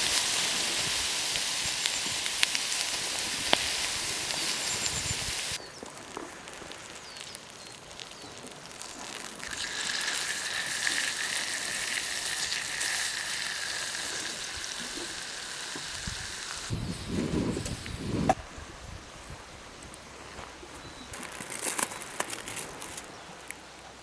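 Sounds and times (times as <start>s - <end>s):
chicken sizzling on iron plate: 0.0s - 5.6s, 6.8s - 18.0s.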